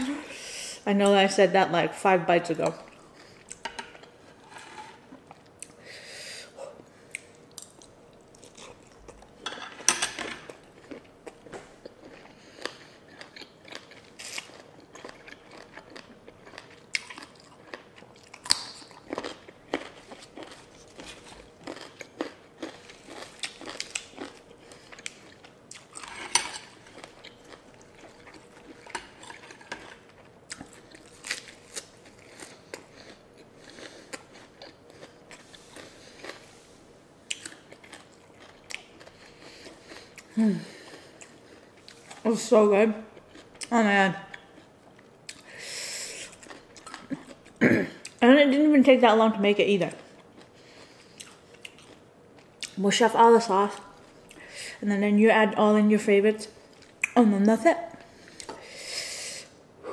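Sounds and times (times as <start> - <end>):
person chewing crunchy food: 7.0 - 9.4, 10.4 - 42.2, 43.1 - 43.7, 44.3 - 48.2, 50.0 - 52.8.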